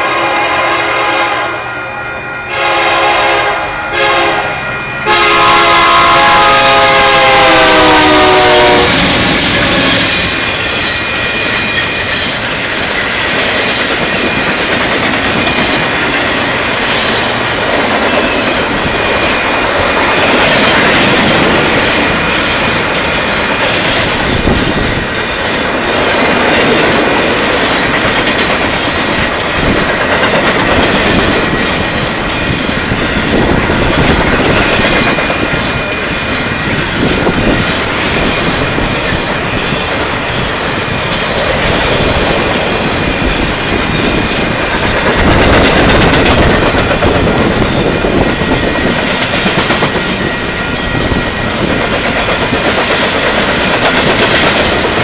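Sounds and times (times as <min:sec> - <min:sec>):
locomotive air horn blasts: 0:00.0 - 0:10.0
train rumble and wheel clatter: 0:00.0 - 0:55.0.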